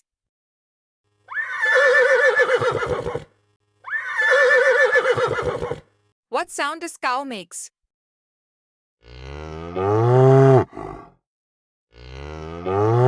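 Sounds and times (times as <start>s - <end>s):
horse neighing: 1.3s - 5.9s.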